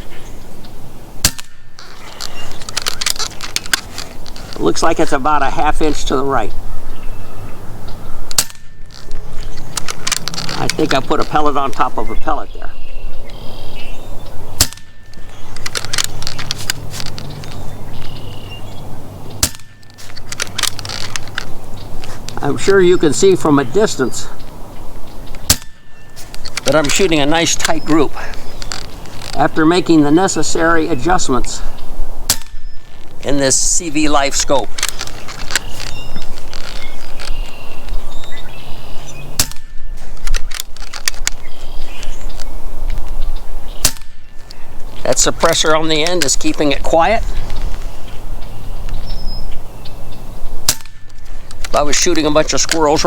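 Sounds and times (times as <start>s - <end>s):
air rifle shot: 14.6s - 15.0s, 19.4s - 19.8s, 25.4s - 25.8s, 39.3s - 39.9s, 50.6s - 51.1s.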